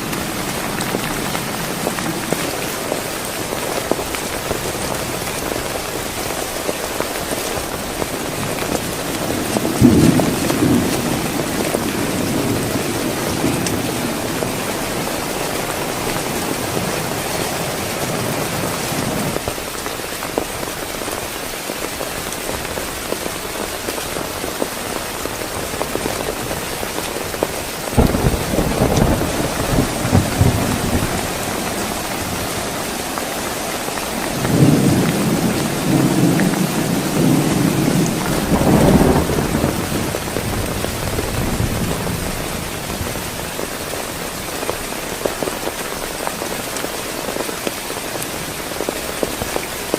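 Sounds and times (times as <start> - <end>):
heavy rain falling: 0.0 - 49.9
thunder rumbling: 7.6 - 19.5, 22.6 - 44.4.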